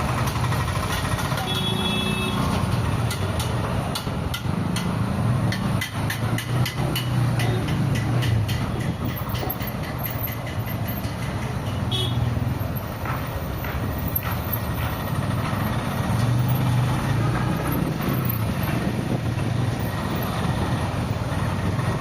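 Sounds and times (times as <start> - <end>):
sharp clicks and rattles: 0.0 - 1.5, 2.4 - 22.0
car horn toot: 1.4 - 2.5, 11.8 - 12.3.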